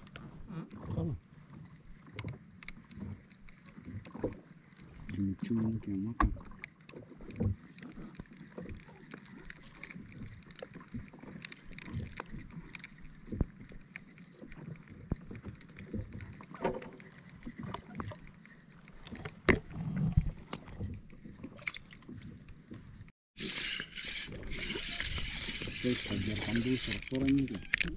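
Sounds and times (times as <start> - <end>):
water lapping on hull: 0.0 - 27.9
knocks and clicks on boat: 5.1 - 12.5.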